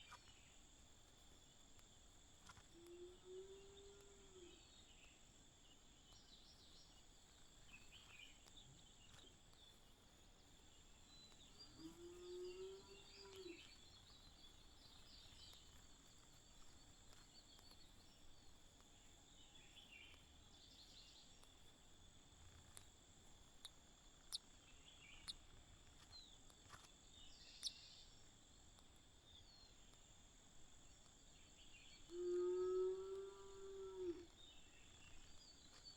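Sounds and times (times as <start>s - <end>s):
faint bird chirps: 27.2s - 28.1s.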